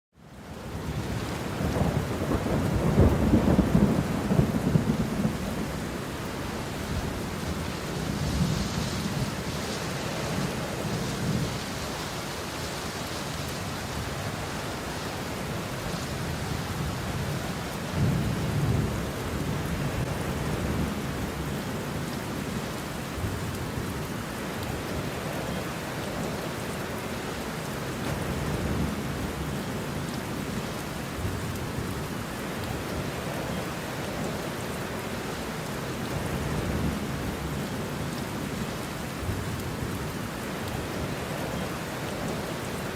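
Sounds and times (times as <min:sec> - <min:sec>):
steady rain: 0:00.1 - 0:42.9
low rolling thunder: 0:00.8 - 0:11.9, 0:16.2 - 0:22.6.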